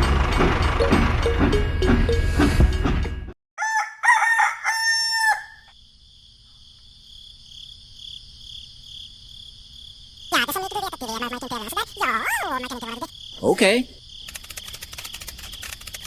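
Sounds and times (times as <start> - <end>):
rooster crowing: 3.6 - 5.7
insect trill: 4.4 - 16.0.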